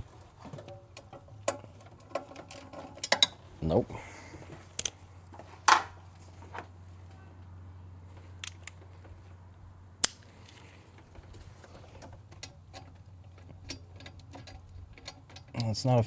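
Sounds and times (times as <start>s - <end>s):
low steady hum: 0.0s - 16.0s
metal socket clinking: 0.6s - 3.4s.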